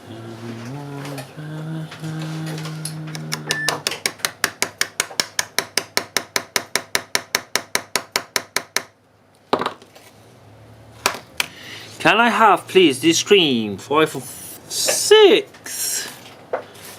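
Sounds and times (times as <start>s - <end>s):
steady pitched hum: 0.0s - 6.6s.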